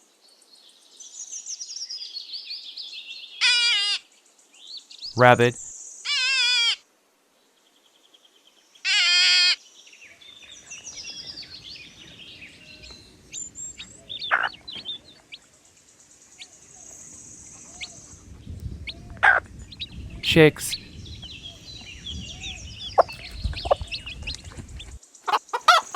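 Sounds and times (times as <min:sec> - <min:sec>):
low outdoor background: 0:05.1 - 0:05.7, 0:10.2 - 0:25.9.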